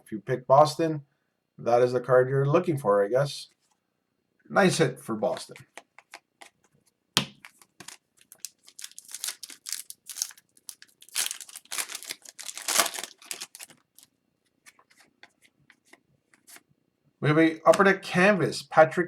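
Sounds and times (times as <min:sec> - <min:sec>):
cards rustling: 0:05.6 - 0:16.7
foil wrapper tearing and crinkling: 0:07.8 - 0:14.1.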